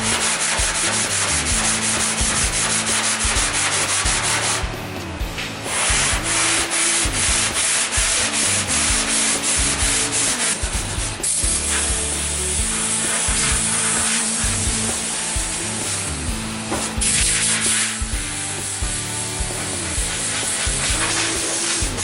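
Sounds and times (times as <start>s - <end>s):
sandpaper rubbing on car panel: 0.1s - 4.6s.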